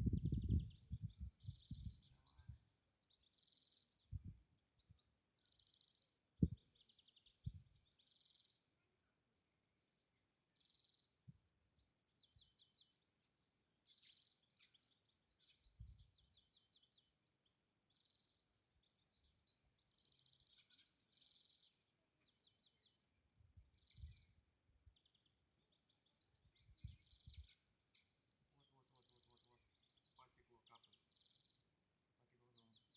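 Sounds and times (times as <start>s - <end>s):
soft low thumps: 0.0s - 2.0s, 6.4s - 6.6s
birds chirping and trilling: 0.0s - 8.9s, 10.4s - 11.2s, 12.0s - 32.9s.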